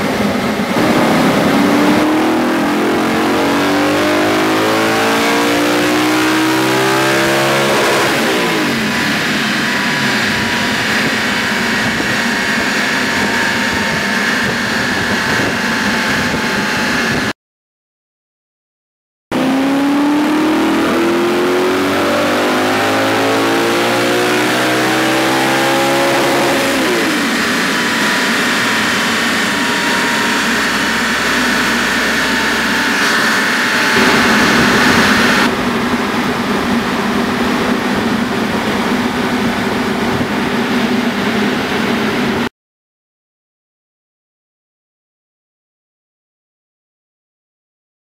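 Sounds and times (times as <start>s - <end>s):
low hum: 0.0s - 4.8s, 24.3s - 42.5s
high whine of coasting car: 0.0s - 16.5s, 19.4s - 42.4s
car engine revving at full throttle: 0.0s - 17.3s, 19.3s - 42.5s.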